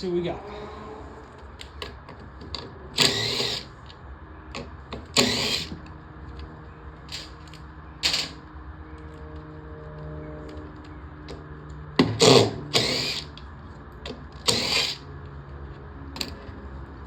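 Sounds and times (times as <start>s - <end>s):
handheld power tool bursts: 3.0s - 3.7s, 5.2s - 5.8s, 12.2s - 13.3s, 14.4s - 15.0s.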